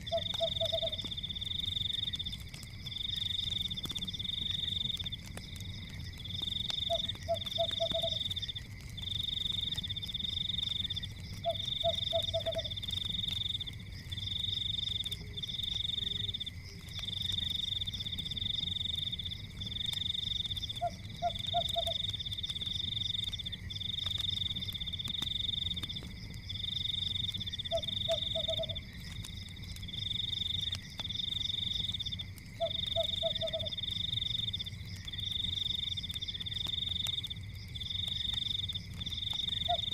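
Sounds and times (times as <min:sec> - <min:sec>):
frog croaking: 0:00.0 - 0:01.0, 0:06.8 - 0:08.3, 0:11.4 - 0:12.8, 0:20.7 - 0:22.1, 0:27.6 - 0:28.9, 0:32.6 - 0:33.8, 0:39.6 - 0:39.9
steady high insect drone: 0:00.0 - 0:39.9.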